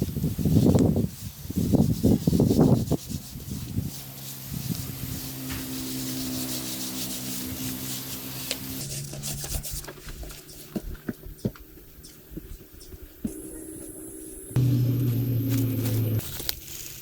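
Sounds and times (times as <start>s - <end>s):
scraping rasping noise: 0.6s - 10.7s
steady low hum: 10.5s - 16.2s.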